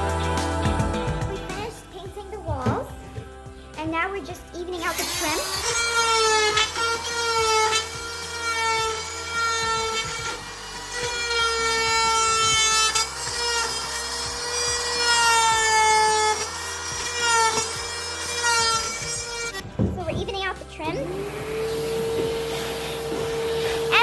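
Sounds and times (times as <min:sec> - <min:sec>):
power tool cutting wood: 0:04.8 - 0:19.7, 0:20.6 - 0:24.0.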